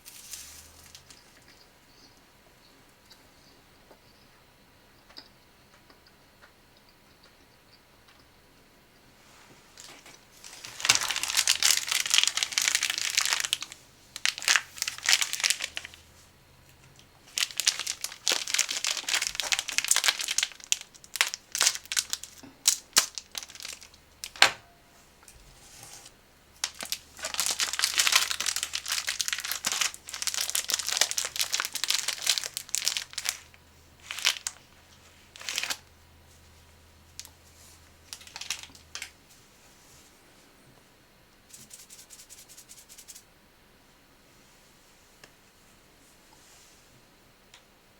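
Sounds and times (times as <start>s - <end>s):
snack packaging crinkling: 0.0s - 1.6s, 9.8s - 16.1s, 16.8s - 24.4s, 26.6s - 34.6s, 35.3s - 35.9s, 38.1s - 39.2s.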